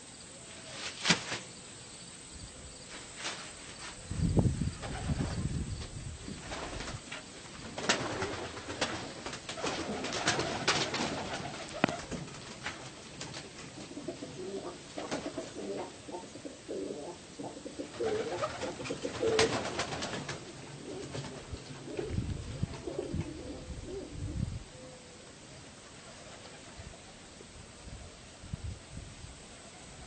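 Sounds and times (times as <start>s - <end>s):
pigeons cooing: 7.8s - 12.3s, 13.7s - 25.4s.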